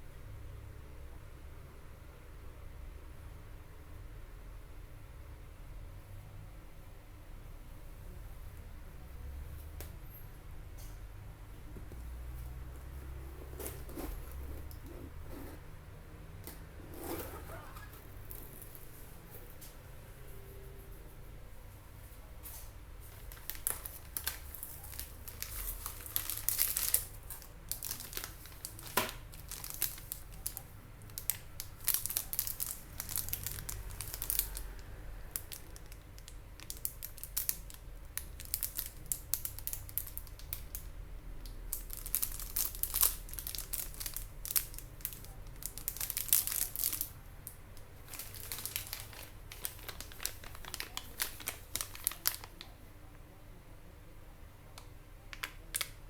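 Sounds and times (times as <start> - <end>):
packaging crinkling and rustling: 11.9 - 15.6, 16.9 - 19.8, 22.5 - 52.8.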